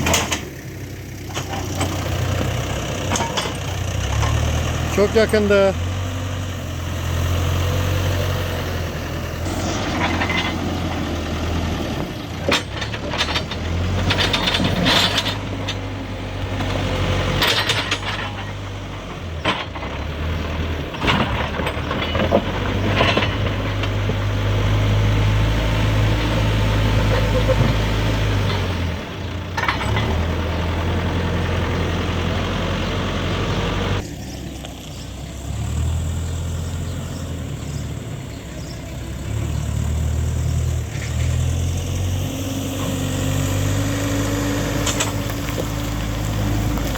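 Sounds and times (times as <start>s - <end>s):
knocks and clanks: 0.0s - 0.6s, 1.2s - 5.6s, 9.5s - 11.1s, 11.9s - 20.3s, 20.9s - 24.4s
backhoe diesel engine working: 0.0s - 46.9s.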